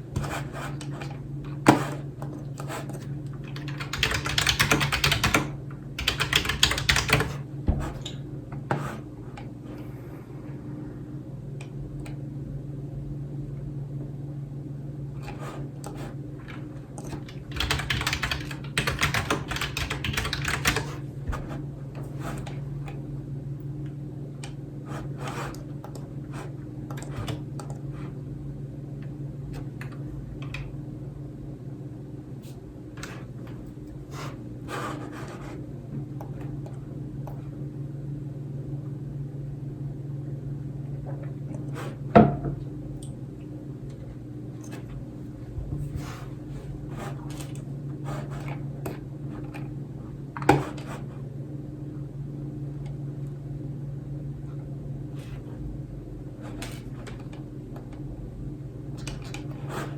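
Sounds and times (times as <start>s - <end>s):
steady low hum: 0.0s - 59.9s
computer keyboard typing: 3.4s - 7.4s, 17.0s - 21.0s.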